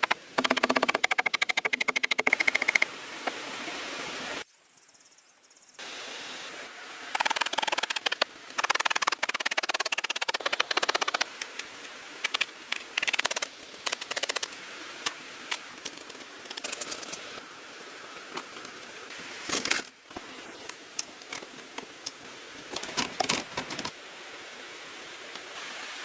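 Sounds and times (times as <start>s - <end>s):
rapid sharp clicks and crackles: 0.0s - 2.9s, 7.1s - 14.6s
steady hiss: 5.6s - 26.0s.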